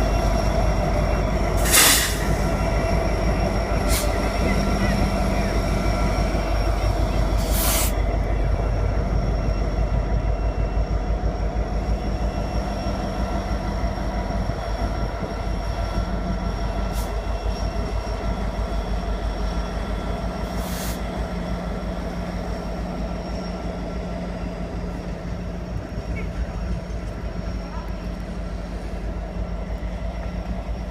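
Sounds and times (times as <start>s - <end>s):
freight train cars rumbling past: 0.0s - 30.9s.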